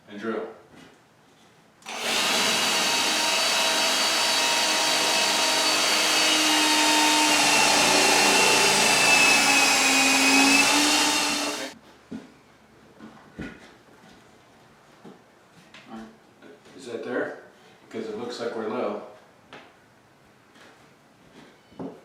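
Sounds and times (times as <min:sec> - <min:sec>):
electric drill boring into wood: 0:01.8 - 0:11.8.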